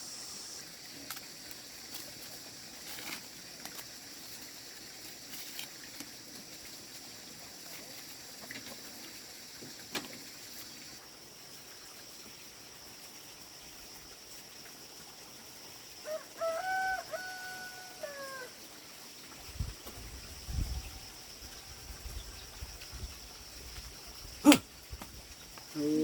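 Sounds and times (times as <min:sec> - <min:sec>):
rooster crowing: 0:16.0 - 0:18.6.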